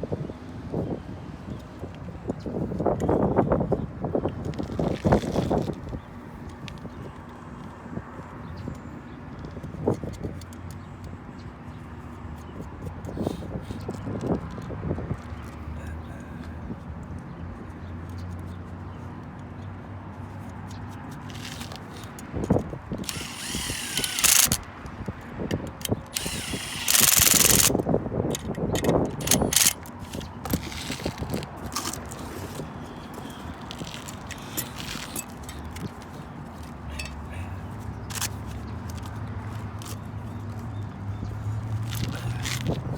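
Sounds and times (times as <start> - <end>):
low mechanical hum: 21.2 - 42.8
metal parts knocking and rubbing: 22.5 - 24.6, 25.5 - 36.0.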